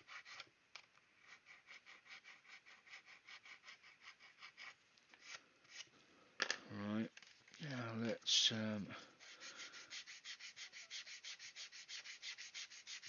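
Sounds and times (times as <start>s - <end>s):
hand-sanding plastic: 0.0s - 0.4s, 1.2s - 5.9s, 9.0s - 13.0s.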